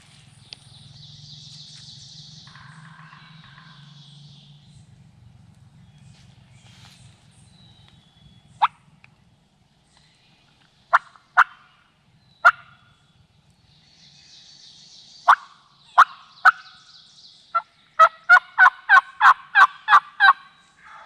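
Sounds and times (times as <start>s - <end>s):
turkey clucks: 10.9s - 11.7s, 12.4s - 12.7s, 15.3s - 16.6s, 17.5s - 21.0s
turkey yelps: 18.0s - 21.0s.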